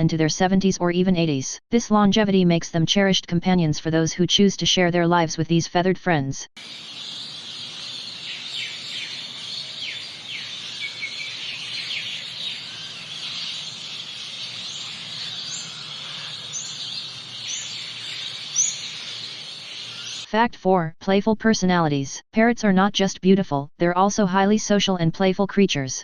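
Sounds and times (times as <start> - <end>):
birds chorus: 6.6 - 20.3
downward-sweeping bird chirps: 6.6 - 20.3
short high rising bird calls: 6.6 - 20.3.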